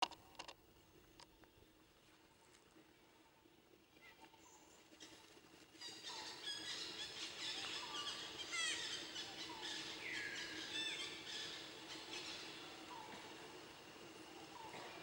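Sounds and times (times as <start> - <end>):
birds chirping and singing: 5.8 - 13.2.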